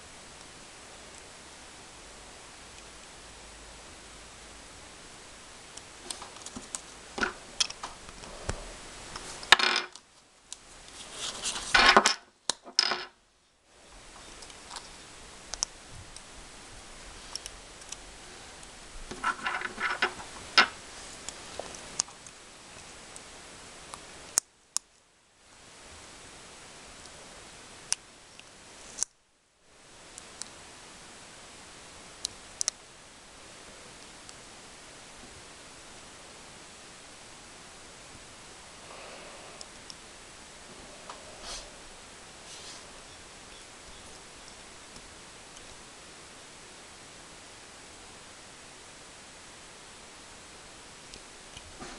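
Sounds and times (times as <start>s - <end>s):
steady hiss: 0.0s - 51.9s.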